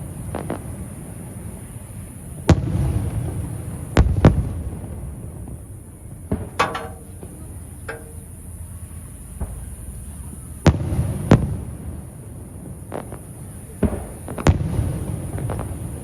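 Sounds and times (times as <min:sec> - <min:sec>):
fireworks pops and crackles: 0:00.0 - 0:08.3, 0:09.4 - 0:16.0
fireworks booms with rumble: 0:02.2 - 0:07.9, 0:09.3 - 0:16.0.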